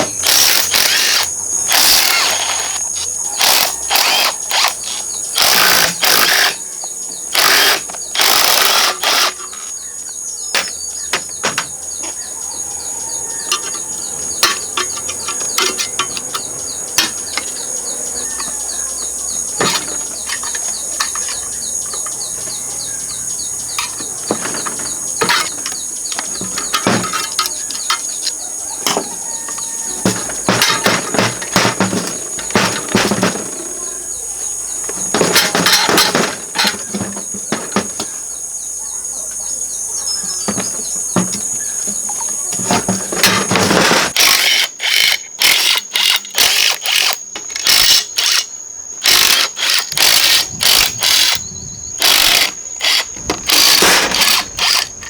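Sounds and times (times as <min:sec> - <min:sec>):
loud rasping bursts: 0:00.0 - 0:06.6, 0:07.3 - 0:09.6, 0:43.4 - 0:51.4, 0:52.0 - 0:55.0
tools clicking and tapping: 0:00.0 - 0:06.6, 0:07.3 - 0:09.8, 0:10.5 - 0:12.2, 0:13.5 - 0:17.6, 0:19.6 - 0:22.5, 0:23.7 - 0:33.6, 0:34.8 - 0:38.2, 0:40.5 - 0:51.4, 0:52.0 - 0:55.0
high insect drone with chirping: 0:00.0 - 0:55.0.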